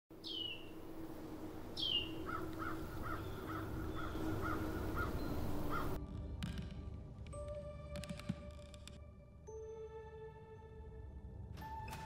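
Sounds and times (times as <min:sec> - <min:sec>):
short repeated bird calls: 0:00.2 - 0:00.7
high falling bird cries: 0:00.2 - 0:00.8, 0:01.8 - 0:06.0
low steady hum: 0:00.2 - 0:06.0.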